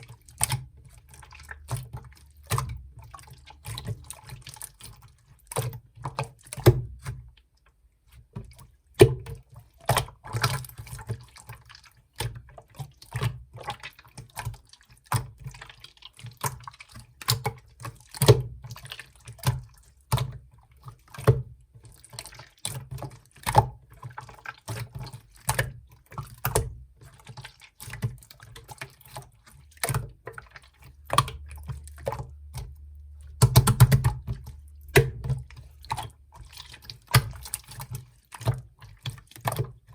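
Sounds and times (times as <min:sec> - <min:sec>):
hands squishing slime: 0:08.1 - 0:39.9.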